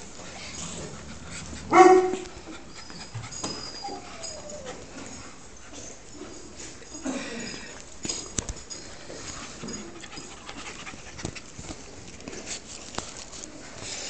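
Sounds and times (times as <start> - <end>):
dog whining: 1.4 - 6.1
small dog yipping: 2.8 - 4.8.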